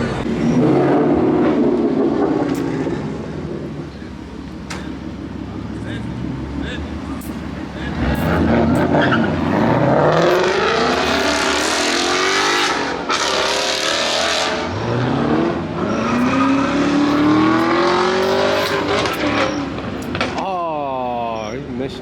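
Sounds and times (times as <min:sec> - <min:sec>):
car engines revving: 0:00.0 - 0:22.0
loud rasping noise: 0:07.2 - 0:14.4, 0:15.9 - 0:20.2.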